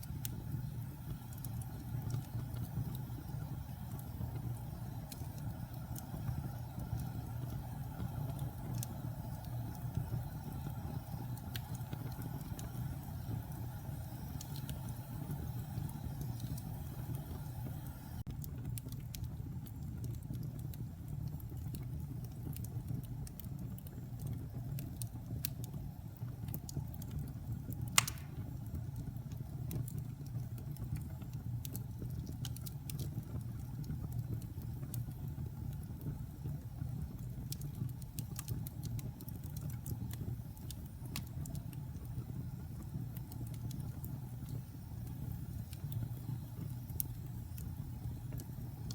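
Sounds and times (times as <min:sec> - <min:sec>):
fire crackling: 0:00.0 - 0:48.9
wood fire roaring: 0:00.0 - 0:48.9
log popping: 0:27.9 - 0:28.5.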